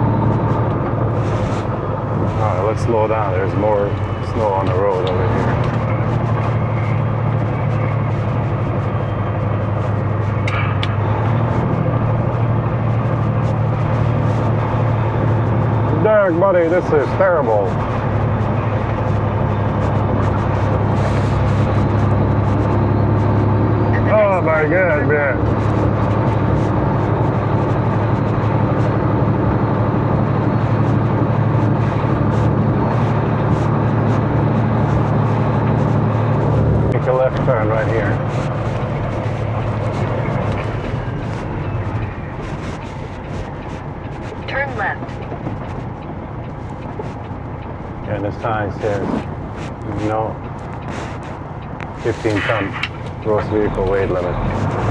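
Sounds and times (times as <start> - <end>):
diesel engine droning in cab: 0.0 - 54.9.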